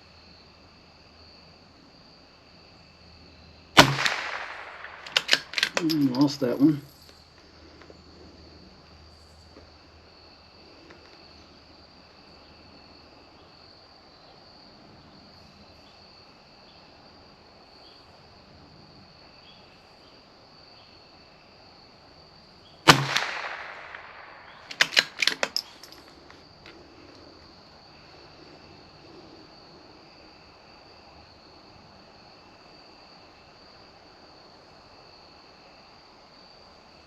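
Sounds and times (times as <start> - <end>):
rifle shot: 3.8 - 6.6, 22.9 - 25.9
rifle bolt metallic clicks: 3.8 - 6.7, 22.9 - 26.1.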